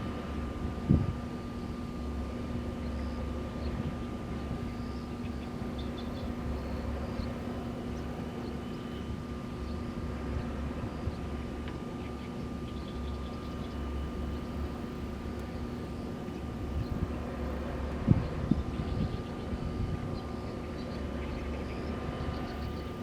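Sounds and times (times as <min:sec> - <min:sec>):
wind blowing and gusting: 0:00.0 - 0:08.3, 0:14.6 - 0:23.0
continuous machine hum: 0:00.0 - 0:23.0
high turbine drive tone: 0:00.0 - 0:23.0.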